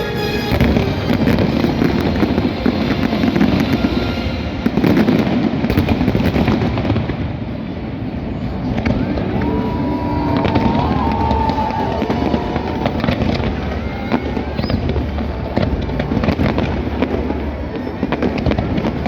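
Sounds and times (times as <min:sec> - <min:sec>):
fireworks booming and crackling: 0:00.2 - 0:19.0
wavering firework whistle: 0:08.6 - 0:17.2.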